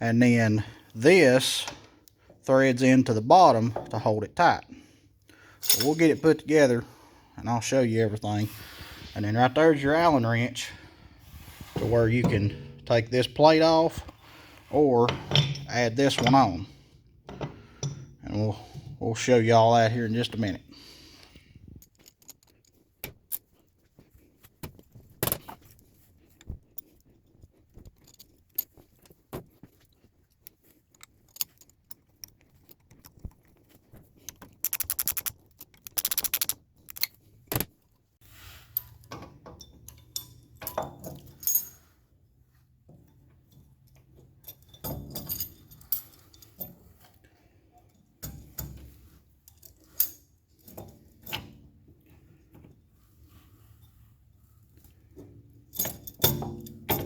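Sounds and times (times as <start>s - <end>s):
metal parts and tools clinking: 5.6s - 6.9s, 11.5s - 20.8s, 21.7s - 38.0s, 38.6s - 42.0s, 42.9s - 52.9s, 53.8s - 57.0s.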